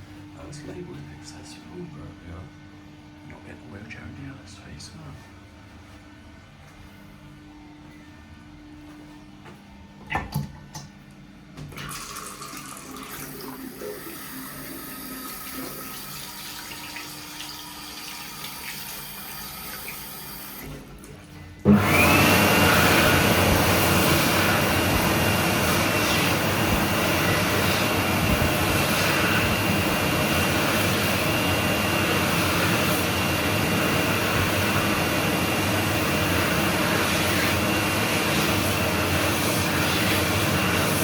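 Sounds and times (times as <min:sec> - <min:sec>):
hot-air hand dryer running: 0:11.6 - 0:41.0.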